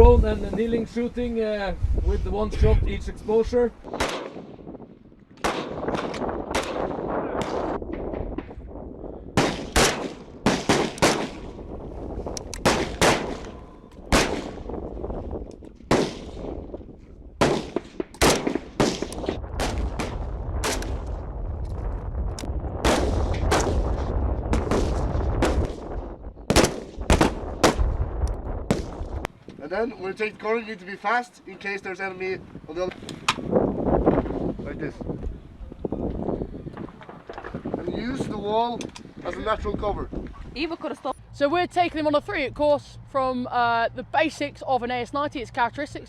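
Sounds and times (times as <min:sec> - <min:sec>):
rifle shots: 0:03.9 - 0:04.6, 0:05.4 - 0:07.8, 0:09.4 - 0:11.7, 0:12.5 - 0:14.8, 0:15.9 - 0:16.6, 0:17.4 - 0:21.1, 0:22.8 - 0:28.0, 0:28.7 - 0:29.2
low rumble: 0:05.8 - 0:29.3.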